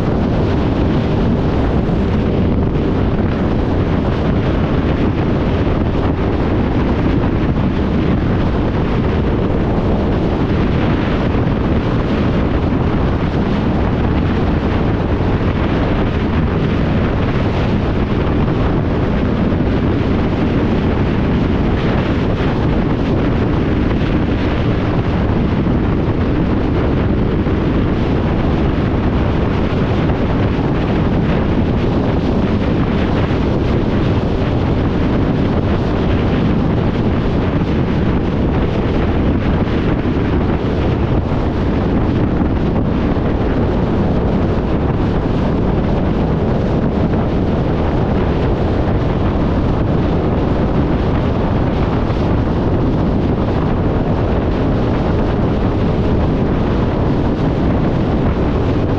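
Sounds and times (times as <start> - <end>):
motorcycle and road noise: 0.0 - 58.9
wind rush on microphone: 0.0 - 58.9.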